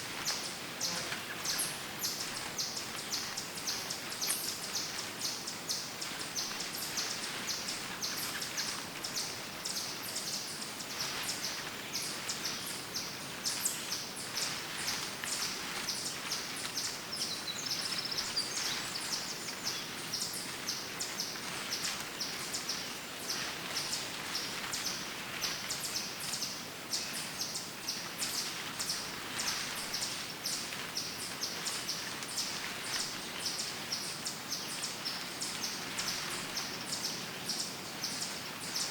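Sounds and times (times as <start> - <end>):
footsteps crunching through dry leaves: 0.0 - 9.6, 27.6 - 37.2
birds chirping and singing: 0.2 - 38.9.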